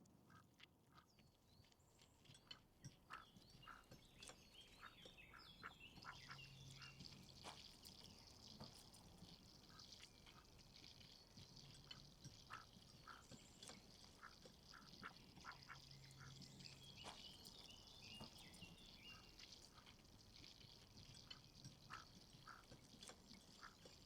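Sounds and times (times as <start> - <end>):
faint bird chirps: 1.1 - 8.2, 12.4 - 20.7.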